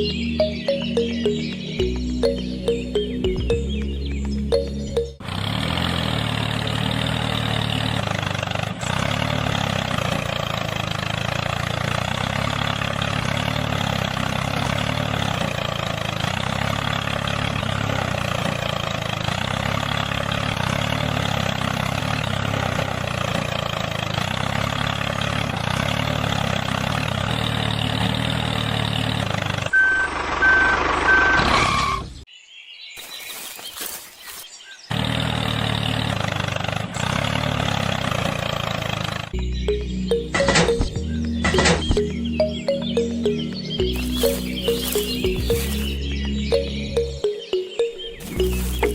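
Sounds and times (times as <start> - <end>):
motor running steadily: 38.3 - 47.0.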